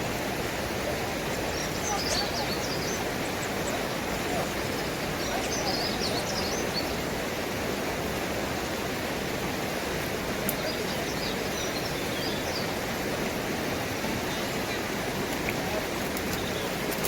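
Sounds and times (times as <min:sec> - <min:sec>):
small birds twittering: 0:01.2 - 0:07.3, 0:10.4 - 0:17.0.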